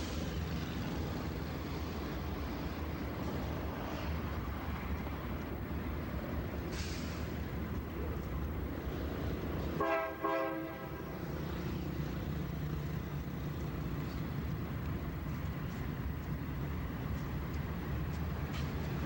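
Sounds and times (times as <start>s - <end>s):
diesel locomotive rumbling: 0.0s - 19.0s
locomotive horn blasts: 9.8s - 11.2s.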